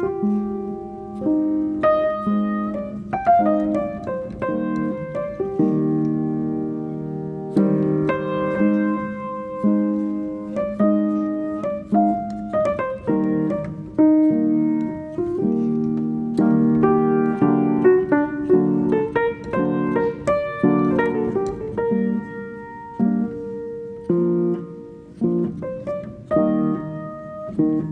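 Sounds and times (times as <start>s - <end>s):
gentle piano music: 0.0s - 27.9s.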